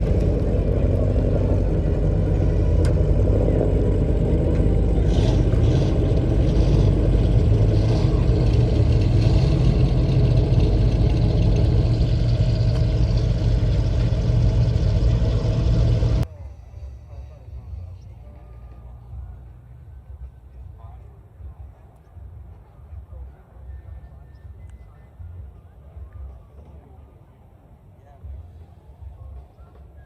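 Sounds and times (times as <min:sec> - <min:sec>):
car engine running: 0:00.0 - 0:16.3.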